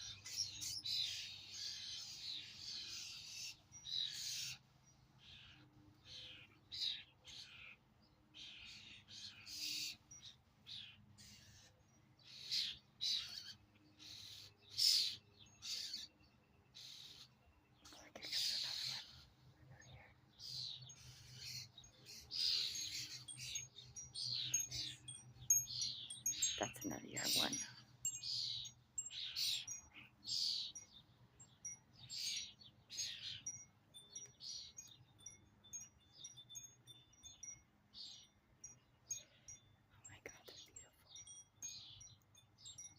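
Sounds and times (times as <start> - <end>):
birds giving harsh raspy calls: 0.0 - 19.3, 20.4 - 30.9.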